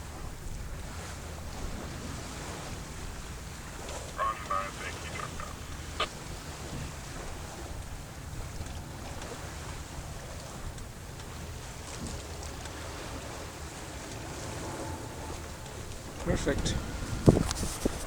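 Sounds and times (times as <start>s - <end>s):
water washing along hull: 0.0s - 18.0s
wind rumble on microphone: 9.9s - 18.0s.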